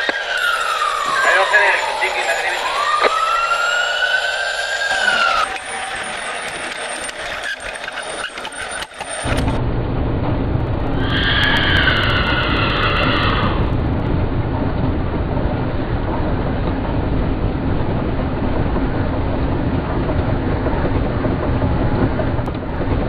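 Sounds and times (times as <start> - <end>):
siren tone: 0.0 - 9.6, 10.9 - 13.8
steady low rumble: 9.2 - 23.0
horse whinny: 11.0 - 13.7.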